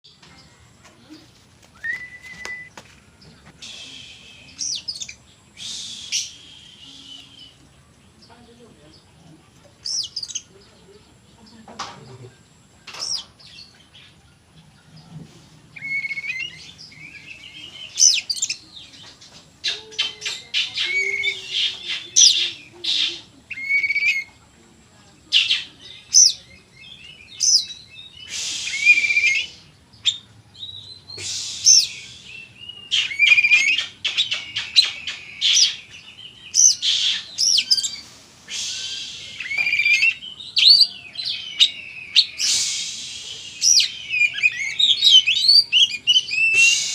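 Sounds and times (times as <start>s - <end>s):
magpie-robin singing: 3.6s - 9.1s, 9.8s - 10.9s, 15.8s - 24.4s, 25.3s - 38.0s, 38.6s - 46.9s.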